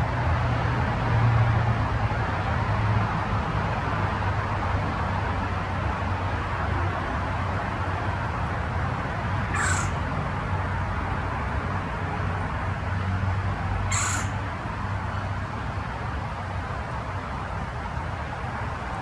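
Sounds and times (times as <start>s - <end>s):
bird shrill calls: 9.5s - 10.0s, 13.9s - 14.4s.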